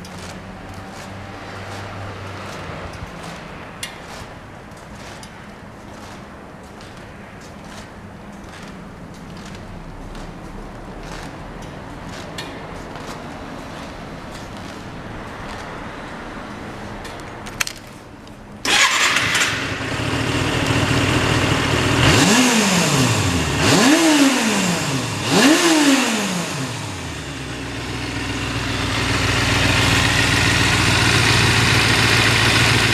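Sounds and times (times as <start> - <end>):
motorcycle engine revving and idling: 6.8 - 11.4, 18.6 - 32.9.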